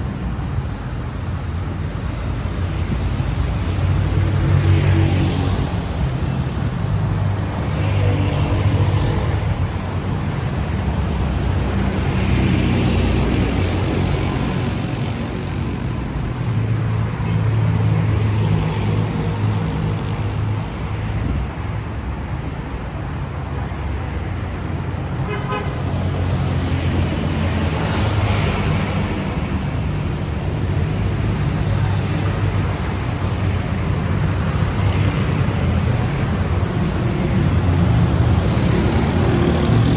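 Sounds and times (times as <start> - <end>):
cars passing: 0.0 - 39.9
traffic engines running: 0.0 - 39.9
car horn toot: 25.3 - 25.8.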